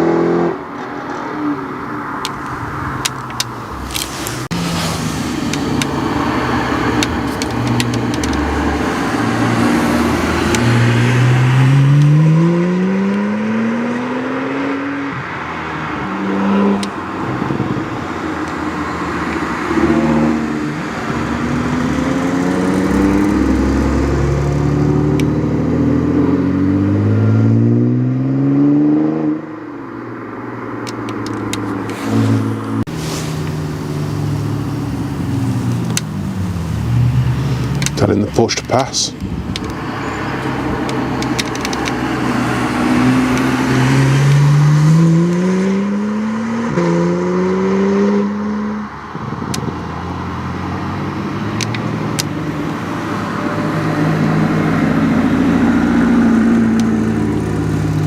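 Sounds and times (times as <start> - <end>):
sports car engines accelerating: 0.0 - 58.0.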